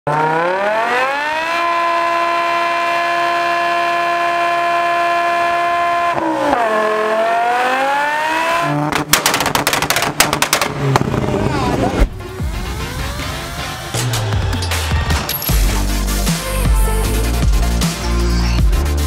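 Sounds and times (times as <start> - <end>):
car engine revving high: 0.1 - 14.4.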